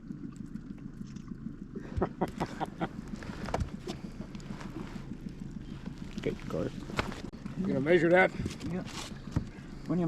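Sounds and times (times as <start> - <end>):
steady low hum: 0.0 - 10.0
sharp knocks and taps in boat: 1.9 - 4.8, 5.8 - 7.3, 8.3 - 9.6.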